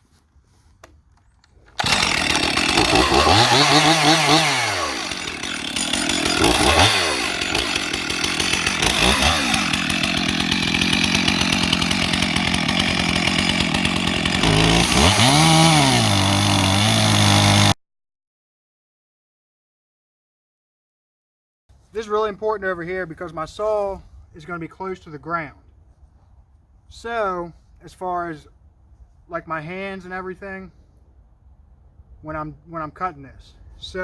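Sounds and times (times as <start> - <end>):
chainsaw running: 1.4 - 17.8.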